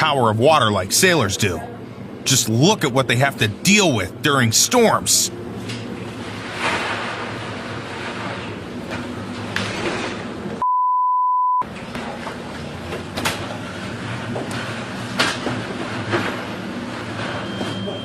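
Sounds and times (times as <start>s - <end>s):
censor bleep tone: 10.6s - 11.6s.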